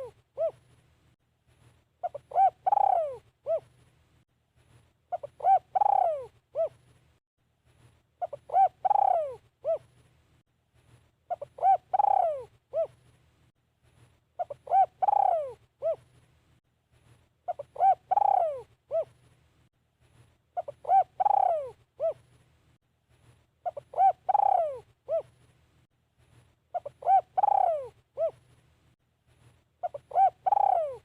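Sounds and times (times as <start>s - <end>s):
dove cooing: 0.0s - 0.7s, 2.0s - 3.8s, 5.1s - 6.8s, 8.2s - 9.9s, 11.3s - 13.0s, 14.4s - 16.1s, 17.5s - 19.2s, 20.6s - 22.2s, 23.6s - 25.4s, 26.7s - 28.4s, 29.8s - 31.0s.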